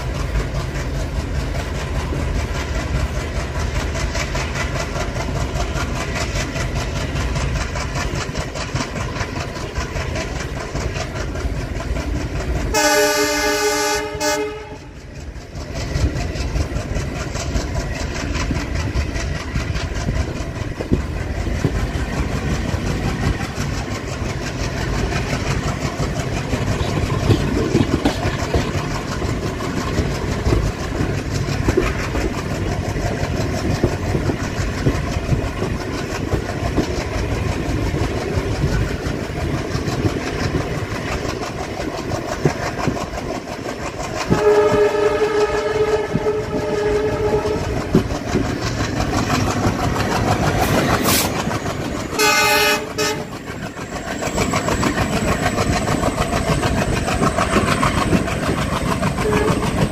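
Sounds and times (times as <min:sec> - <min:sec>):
train rumble: 0:00.0 - 0:59.9
wheels clattering over rails: 0:00.0 - 0:59.9
train horn: 0:12.7 - 0:15.0, 0:44.3 - 0:48.0, 0:52.2 - 0:53.3, 0:59.2 - 0:59.9.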